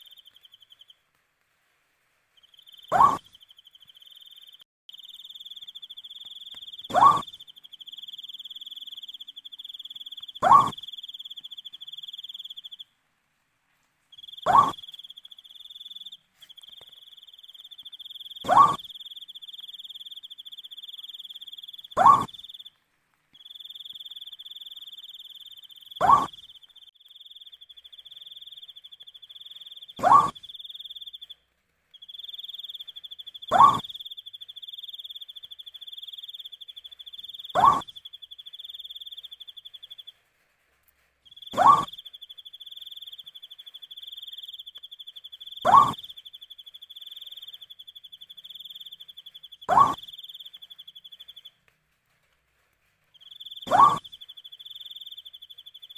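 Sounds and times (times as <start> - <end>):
crickets trilling: 2.4 - 12.8, 14.2 - 22.7, 23.4 - 31.4, 32.0 - 40.1, 41.3 - 51.5, 53.2 - 55.9
owl hooting: 2.6 - 12.8, 14.2 - 22.7, 23.4 - 26.6, 27.8 - 31.3, 32.0 - 40.1, 41.3 - 51.4, 53.2 - 55.9.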